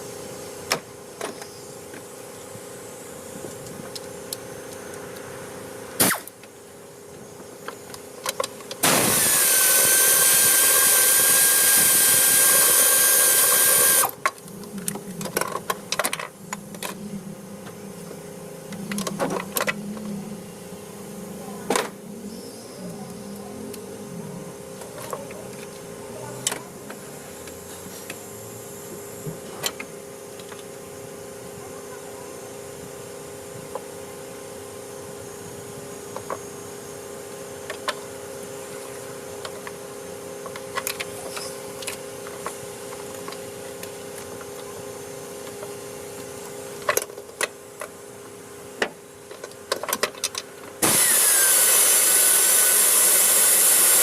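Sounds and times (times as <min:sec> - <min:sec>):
steady mechanical hum: 0:00.0 - 0:54.0
loud power tool running: 0:08.8 - 0:14.2, 0:50.8 - 0:54.0.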